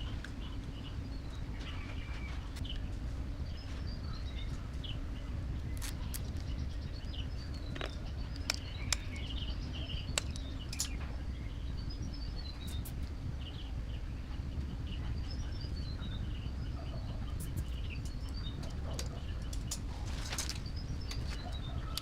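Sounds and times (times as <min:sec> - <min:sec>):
small bird chirping: 0:00.0 - 0:22.0
steady low rumble: 0:00.0 - 0:22.0
sharp clicks: 0:07.7 - 0:09.4, 0:10.1 - 0:11.1.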